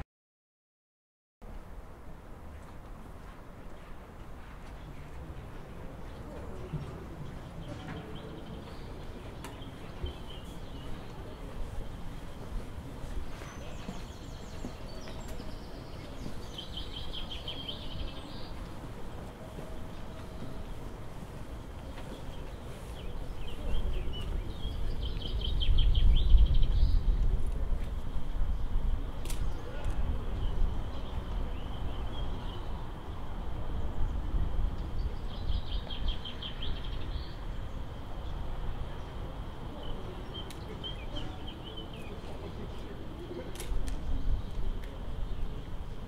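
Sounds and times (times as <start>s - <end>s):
bird chirping: 13.2s - 18.8s.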